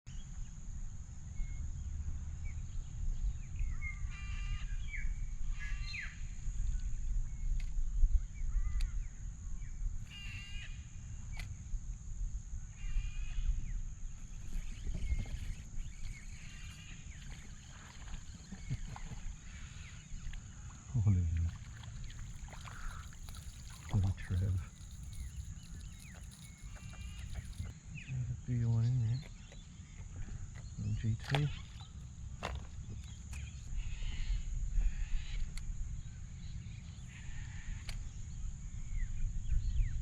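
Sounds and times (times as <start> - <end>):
low wind rumble on microphone: 0.1 - 28.5, 32.2 - 40.0
short bird calls: 18.5 - 28.1.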